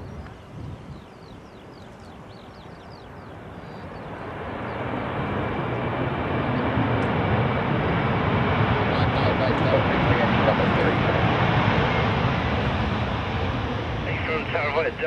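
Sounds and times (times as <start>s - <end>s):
birds chirping: 0.0s - 5.2s, 6.3s - 7.0s
aircraft engines: 0.0s - 15.0s.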